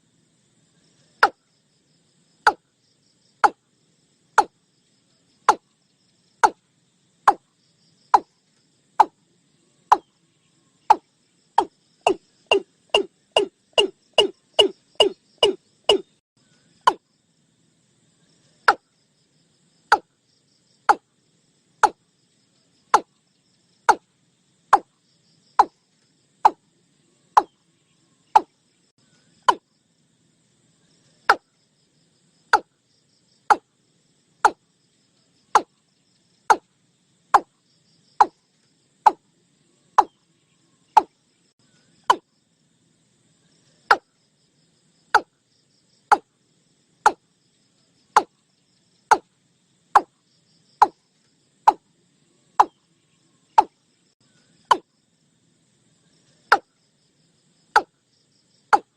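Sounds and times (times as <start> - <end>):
high insect hiss: 0.0 - 58.9
bird calling hollow notes: 3.4 - 3.6, 7.3 - 7.5, 9.0 - 9.2, 9.9 - 10.2, 10.8 - 16.2, 16.8 - 17.0, 18.6 - 18.9, 19.9 - 20.1, 28.3 - 28.6, 29.4 - 29.7, 35.6 - 35.8, 40.0 - 40.2, 40.9 - 41.2, 48.2 - 48.4, 52.6 - 52.8.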